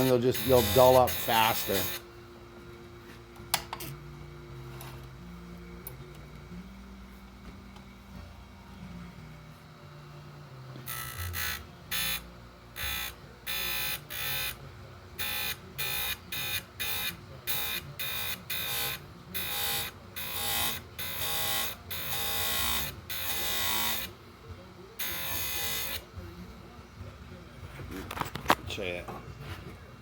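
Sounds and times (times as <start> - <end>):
grinder motor humming: 0.0 - 2.0, 10.7 - 24.2, 24.9 - 26.1.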